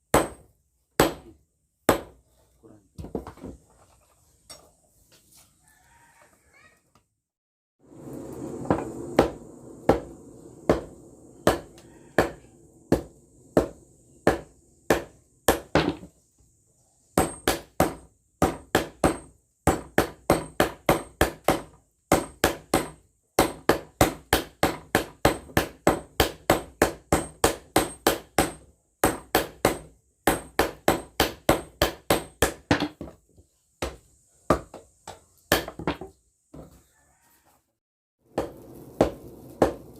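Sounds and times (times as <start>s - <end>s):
hammer striking steel on anvil: 10.7s - 16.0s.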